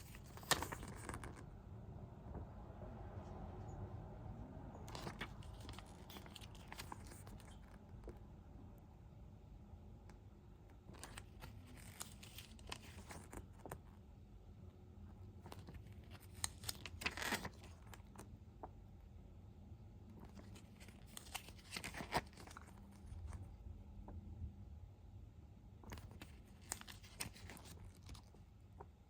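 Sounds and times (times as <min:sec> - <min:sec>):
packaging crinkling and tearing: 0:04.9 - 0:07.8, 0:11.0 - 0:13.8, 0:15.5 - 0:18.2, 0:20.2 - 0:23.4, 0:25.9 - 0:28.4.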